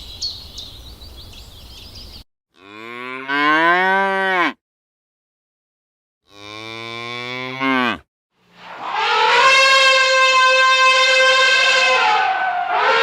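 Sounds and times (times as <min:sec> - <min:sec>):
cow mooing: 0:02.6 - 0:04.6, 0:06.3 - 0:13.0
higher-pitched animal call: 0:08.6 - 0:13.0.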